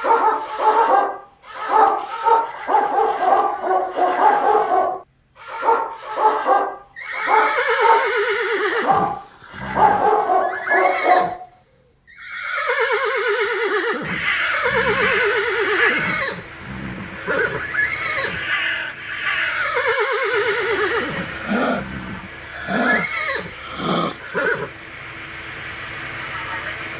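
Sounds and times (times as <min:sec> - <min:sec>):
horses whinnying: 0:06.2 - 0:11.5, 0:12.1 - 0:24.8.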